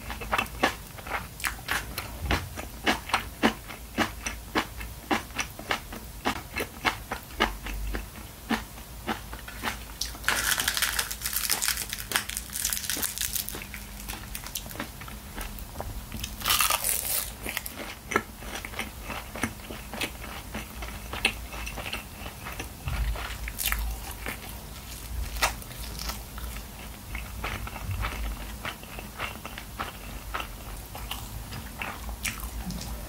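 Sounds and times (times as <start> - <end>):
crisp crunch of biting food: 9.1 - 14.9, 16.2 - 19.5.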